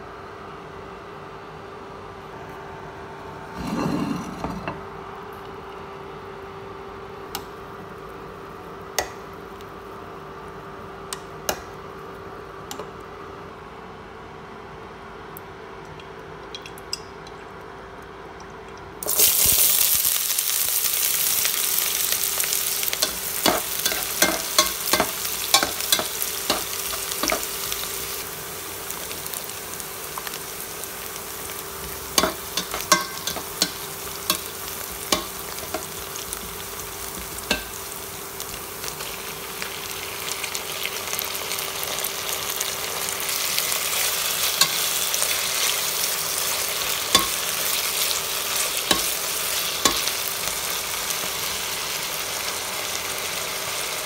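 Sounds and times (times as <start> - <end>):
food sizzling in hot oil: 19.0 - 54.0.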